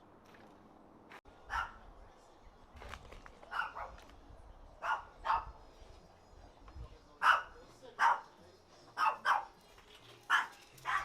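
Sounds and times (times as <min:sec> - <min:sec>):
dog barking: 0:01.5 - 0:01.8, 0:03.5 - 0:04.0, 0:04.8 - 0:05.6, 0:07.2 - 0:08.3, 0:09.0 - 0:09.5, 0:10.3 - 0:11.0.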